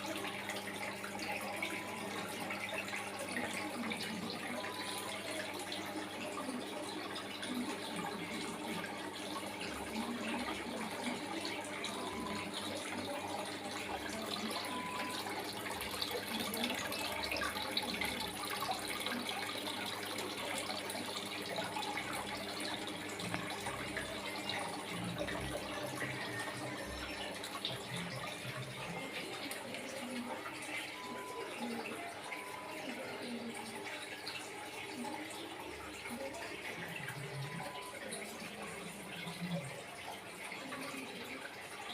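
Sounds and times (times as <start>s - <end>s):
water trickling down waterfall: 0.0s - 41.9s.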